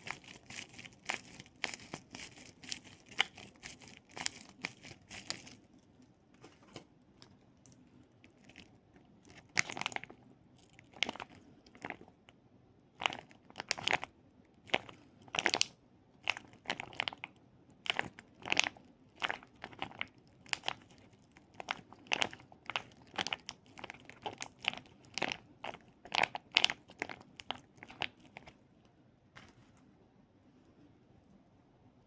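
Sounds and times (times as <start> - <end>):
crunchy crackly toy handling: 0.0 - 12.4, 14.7 - 28.6.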